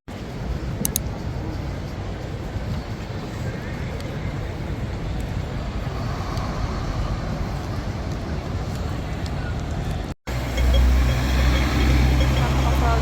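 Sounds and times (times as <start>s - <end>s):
low ambient rumble: 0.1s - 10.5s.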